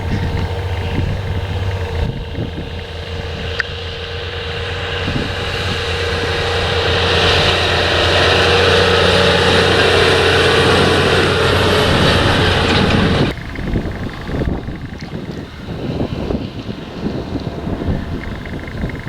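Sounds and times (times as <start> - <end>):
heavy machinery engine running: 0.0 - 19.0.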